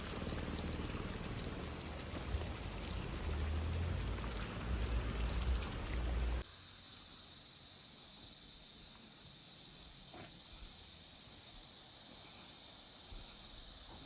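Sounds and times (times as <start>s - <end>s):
running water hissing: 0.0s - 6.4s.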